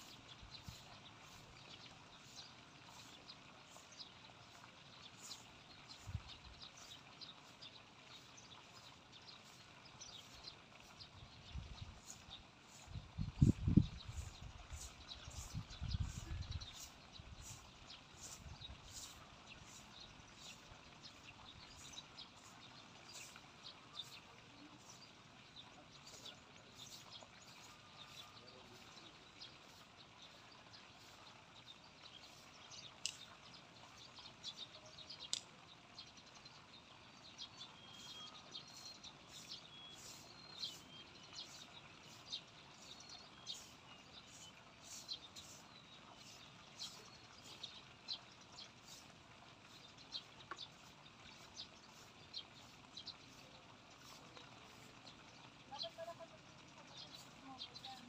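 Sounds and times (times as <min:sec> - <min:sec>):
bird chirps: 0:37.5 - 0:47.8
whistled bird calls: 0:37.8 - 0:42.2.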